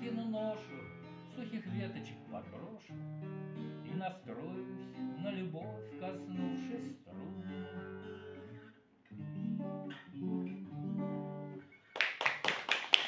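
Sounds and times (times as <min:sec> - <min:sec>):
acoustic guitar chords: 0:00.0 - 0:11.9
applause: 0:11.9 - 0:13.0.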